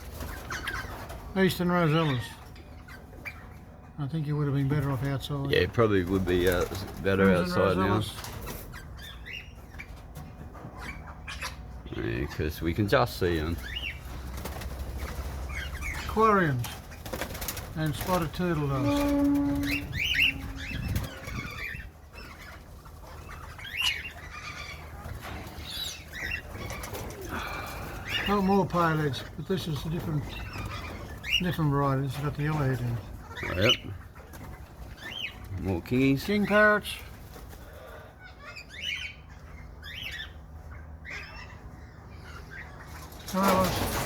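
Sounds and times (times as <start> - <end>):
birds chirping: 0.0 - 44.0
parrots squawking: 0.0 - 44.0
low steady rumble: 17.6 - 36.1.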